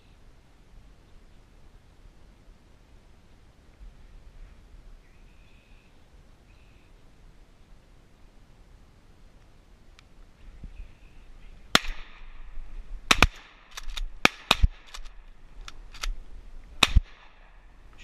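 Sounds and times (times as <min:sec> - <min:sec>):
shotguns firing: 0:11.7 - 0:12.5, 0:13.1 - 0:15.2, 0:16.8 - 0:17.5.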